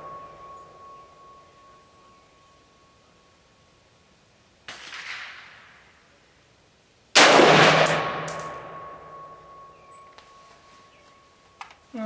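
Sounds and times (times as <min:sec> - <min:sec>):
loud rifle shot: 0:04.7 - 0:05.6, 0:07.2 - 0:08.9.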